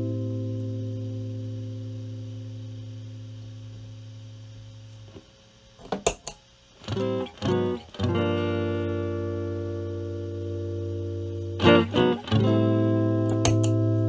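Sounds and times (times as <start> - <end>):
clean electric guitar chords: 0.0 - 4.0, 6.9 - 14.0
footswitch clicks: 5.9 - 6.4, 13.3 - 13.9.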